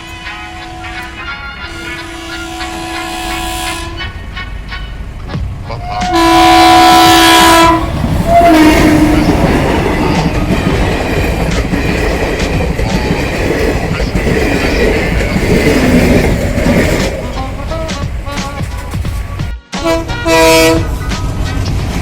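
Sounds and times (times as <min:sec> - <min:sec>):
train horn blast: 0:00.0 - 0:11.2, 0:16.1 - 0:18.9, 0:19.6 - 0:21.7
train rumbling over rails: 0:00.0 - 0:22.0.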